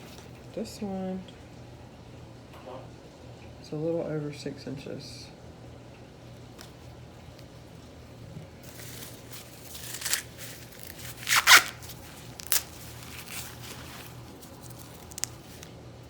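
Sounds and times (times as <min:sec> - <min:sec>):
corn husks rustling: 0:06.6 - 0:15.8
corn husks ripping: 0:08.6 - 0:15.7.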